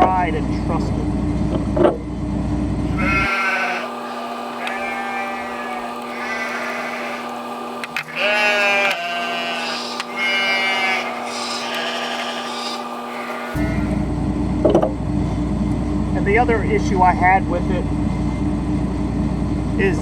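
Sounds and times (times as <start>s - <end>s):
mechanical hum: 0.0s - 20.0s
high squeals: 2.9s - 14.1s.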